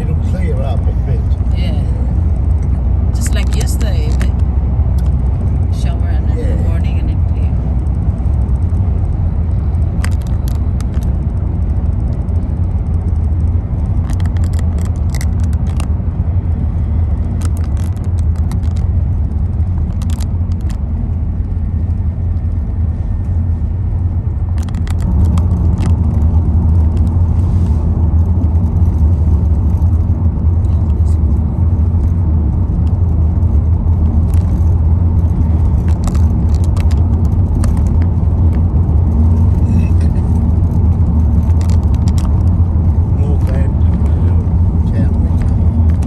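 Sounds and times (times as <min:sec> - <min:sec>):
road and engine rumble: 0:00.0 - 0:46.0
clicks and rattles: 0:09.8 - 0:15.9, 0:17.1 - 0:21.0, 0:24.5 - 0:27.2, 0:32.0 - 0:42.7, 0:45.3 - 0:46.0.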